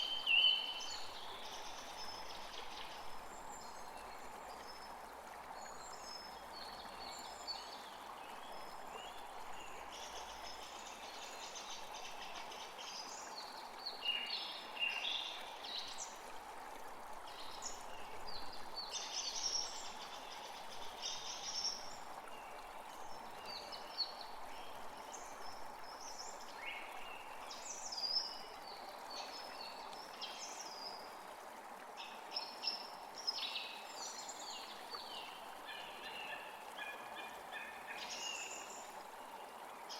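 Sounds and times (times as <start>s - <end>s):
steady background hiss: 0.0s - 31.3s.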